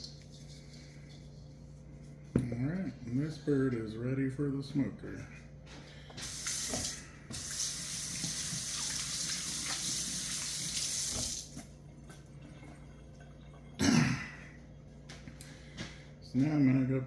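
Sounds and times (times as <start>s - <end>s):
tap running into sink: 6.2s - 11.6s.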